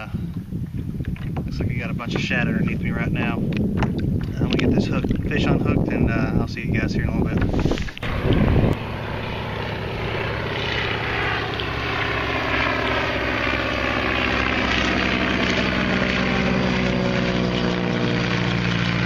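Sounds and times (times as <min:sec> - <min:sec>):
engine droning hum: 0:04.4 - 0:19.0.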